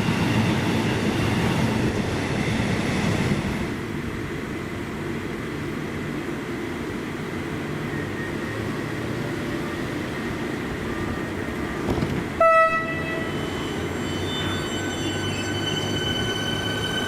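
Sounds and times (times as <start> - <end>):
train rumbling: 0.0 - 17.0
train horn blast: 12.4 - 13.5.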